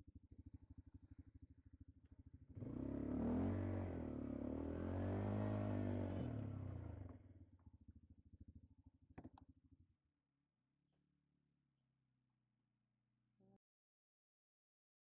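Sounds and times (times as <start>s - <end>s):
atv engine idling and revving: 0.0s - 9.9s.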